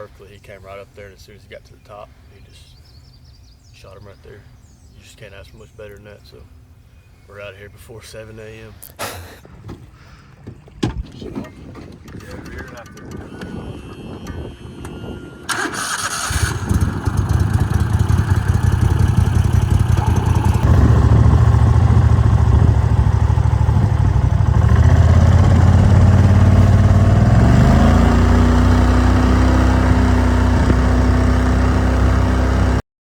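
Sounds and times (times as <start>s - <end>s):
boat motor running loudly: 16.7s - 32.8s.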